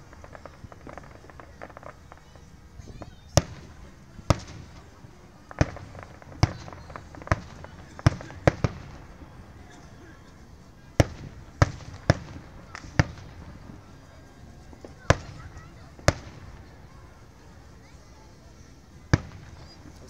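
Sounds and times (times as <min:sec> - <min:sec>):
firework shells bursting: 0:00.0 - 0:02.5, 0:03.4 - 0:09.2.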